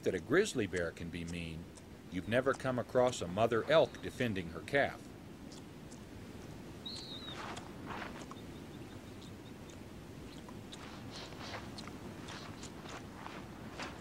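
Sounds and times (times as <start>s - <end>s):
animals rustling through grass: 6.8s - 9.4s, 10.2s - 14.0s.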